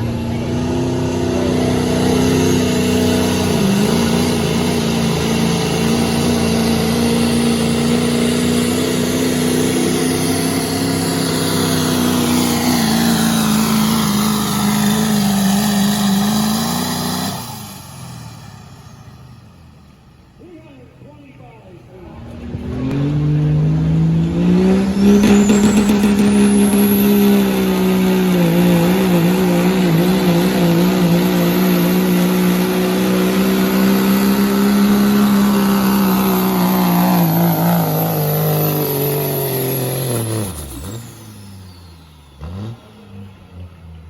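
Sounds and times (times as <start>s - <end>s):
diesel truck engine revving: 0.0s - 20.4s, 21.8s - 44.0s
high turbo whistle: 24.4s - 27.8s.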